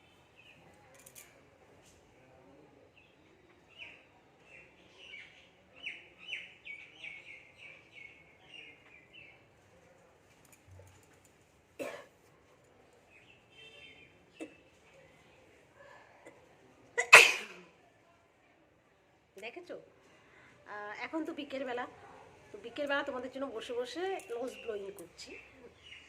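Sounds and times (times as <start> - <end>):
small birds chirping: 2.9 - 9.5, 23.5 - 26.0.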